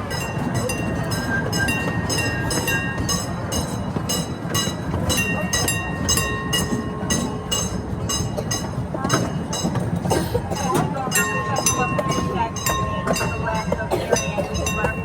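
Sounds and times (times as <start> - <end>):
metallic clacks with ringing: 0.0 - 15.0
miniature train rumbling: 0.0 - 15.0.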